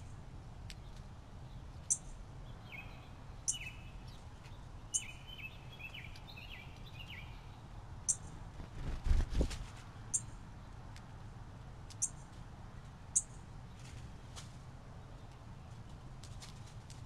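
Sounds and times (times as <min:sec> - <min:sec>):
small birds chirping: 0:00.0 - 0:08.6, 0:09.8 - 0:11.1, 0:11.8 - 0:14.0
low background noise: 0:00.0 - 0:17.0.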